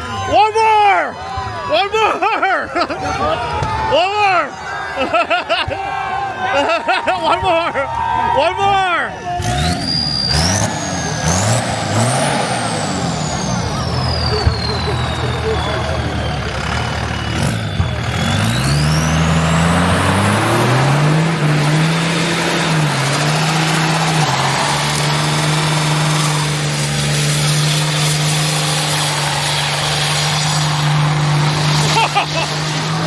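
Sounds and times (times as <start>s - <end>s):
car engine revving: 9.3s - 33.0s.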